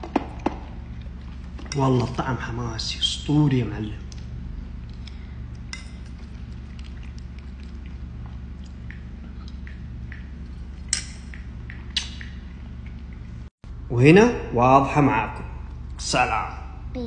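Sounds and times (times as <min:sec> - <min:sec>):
steady low hum: 0:00.0 - 0:17.0
wet mouth clicks chewing: 0:06.0 - 0:13.4.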